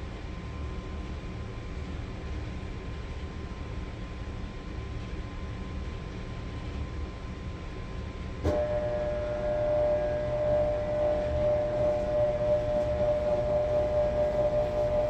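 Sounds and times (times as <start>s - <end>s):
washing machine low rumble: 0.1s - 15.0s
steady motor whine: 8.4s - 15.0s.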